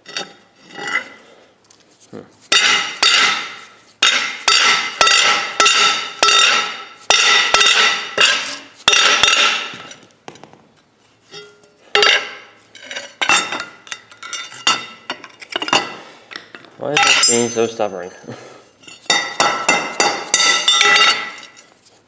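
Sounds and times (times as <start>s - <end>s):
hammer striking metal part: 2.6s - 9.9s.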